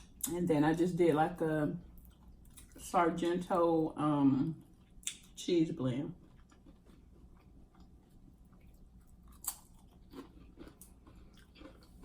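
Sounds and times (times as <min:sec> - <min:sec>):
person chewing food: 0:02.0 - 0:02.8, 0:06.2 - 0:12.0.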